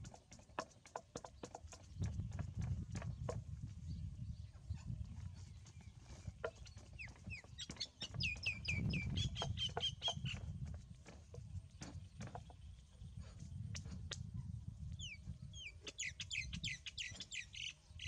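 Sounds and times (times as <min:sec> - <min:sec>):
bird chirping high falling chirps: 0:06.5 - 0:10.5, 0:15.0 - 0:18.0.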